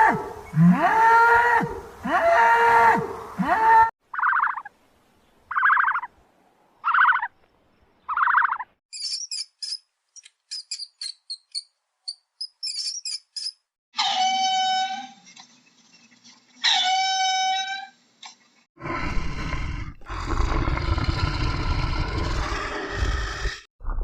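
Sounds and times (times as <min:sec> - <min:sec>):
high bird chirps: 0:04.2 - 0:04.7, 0:05.5 - 0:06.1, 0:08.0 - 0:13.7.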